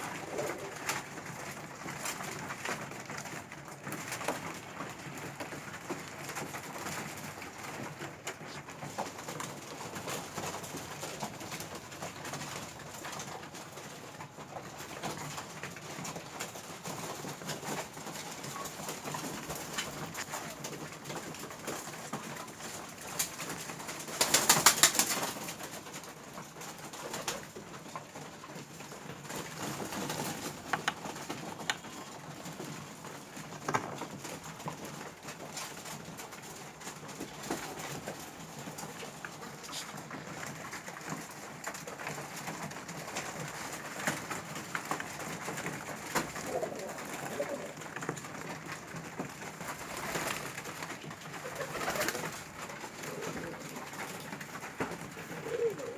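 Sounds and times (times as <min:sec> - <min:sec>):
pigeons cooing: 0:00.0 - 0:55.9
pecking ticks: 0:43.1 - 0:55.9.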